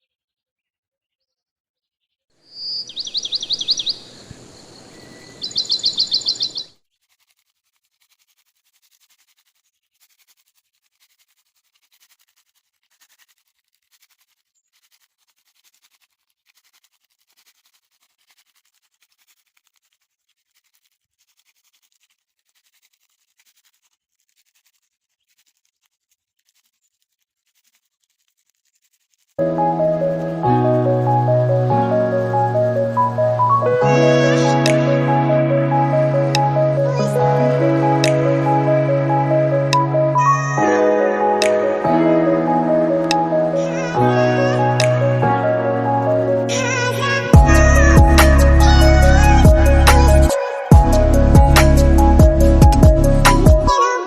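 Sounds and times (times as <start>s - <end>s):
bird trilling: 2.5s - 6.7s.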